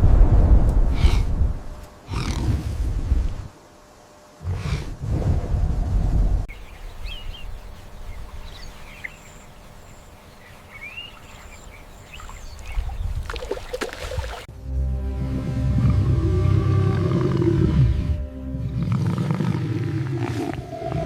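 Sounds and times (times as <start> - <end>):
low rumble: 0.0 - 3.5, 4.4 - 8.9.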